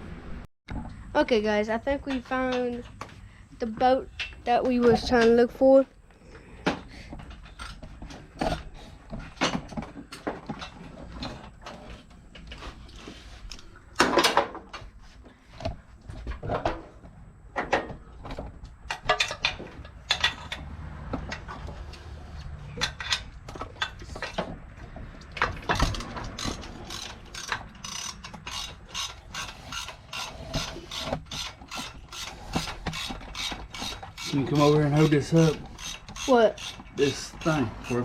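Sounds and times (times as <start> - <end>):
ratchet wrench clicking: 25.7 - 38.0.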